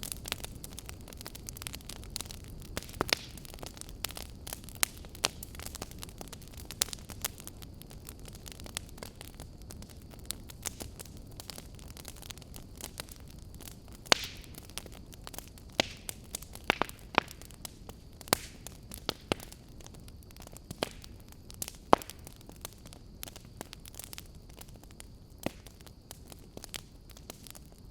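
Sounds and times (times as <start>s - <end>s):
fire rumble and hiss: 0.0s - 27.9s
wood fire crackling and popping: 0.0s - 27.9s.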